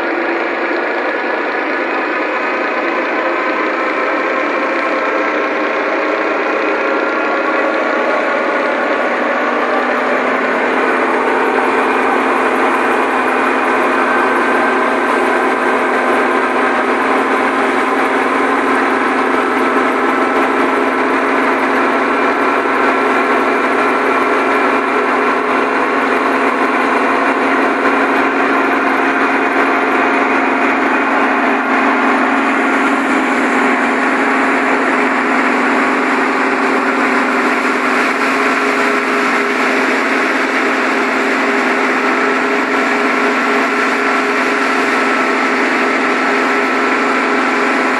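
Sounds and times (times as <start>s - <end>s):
thresher mechanical hum: 0.0s - 47.9s.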